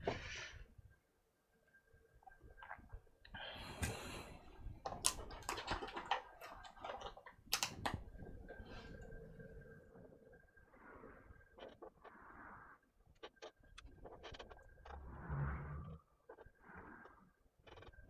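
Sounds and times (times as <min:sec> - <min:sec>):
small tools clicking and clattering: 0:04.8 - 0:08.0.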